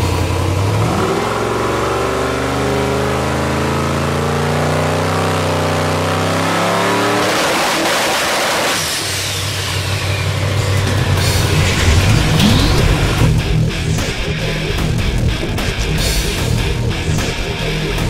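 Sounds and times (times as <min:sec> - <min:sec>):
drag car engine revving: 0:00.0 - 0:18.0
loud rushing noise: 0:09.2 - 0:14.4.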